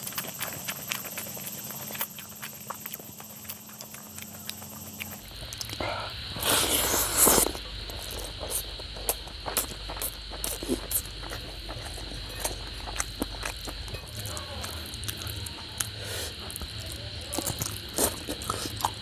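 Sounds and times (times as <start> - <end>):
fingers squishing rice: 0.0 - 19.0
wet chewing and lip smacks: 0.0 - 19.0.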